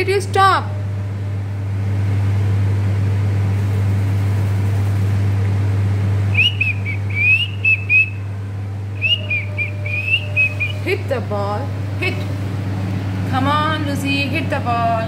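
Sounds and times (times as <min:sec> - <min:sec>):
low hum: 0:00.0 - 0:15.0
parrot whistling chirped notes: 0:06.3 - 0:08.3, 0:09.0 - 0:11.0.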